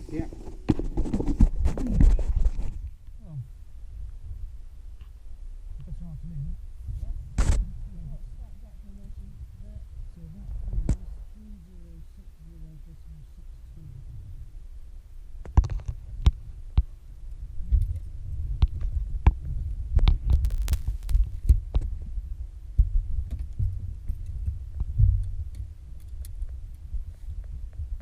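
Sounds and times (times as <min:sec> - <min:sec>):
low uneven rumble: 0:00.0 - 0:28.0
sharp clicks and knocks: 0:20.0 - 0:21.9.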